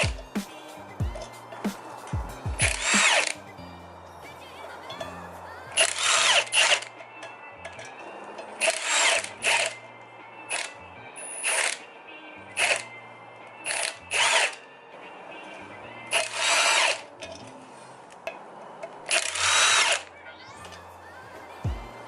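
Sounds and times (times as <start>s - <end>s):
background music: 0.0s - 22.0s
cordless power tool spinning: 2.6s - 3.4s, 5.8s - 6.9s, 8.6s - 9.8s, 10.5s - 10.8s, 11.4s - 11.8s, 12.6s - 12.9s, 13.6s - 14.6s, 16.1s - 17.1s, 19.1s - 20.1s.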